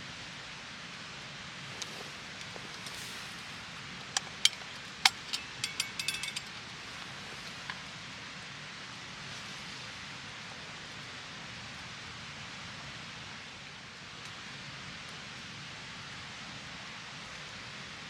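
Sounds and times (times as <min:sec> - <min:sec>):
steady outdoor hiss: 0:00.0 - 0:18.0
light metallic clinks: 0:01.8 - 0:07.8.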